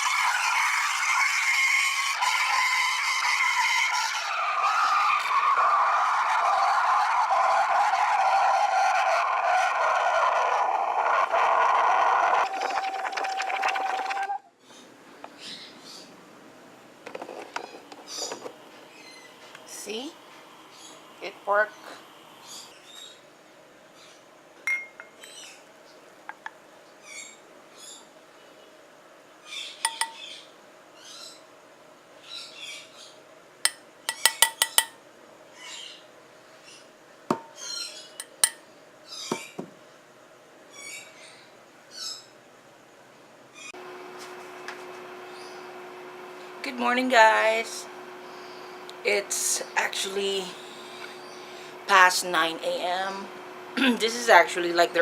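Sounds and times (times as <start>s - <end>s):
steam wand frothing milk: 0.0s - 14.4s
birds chirping: 17.6s - 20.0s, 20.6s - 23.2s, 45.2s - 46.2s, 46.8s - 54.9s
spoon clinking against cup: 24.7s - 25.3s, 29.9s - 30.2s, 33.7s - 35.0s, 38.2s - 38.6s.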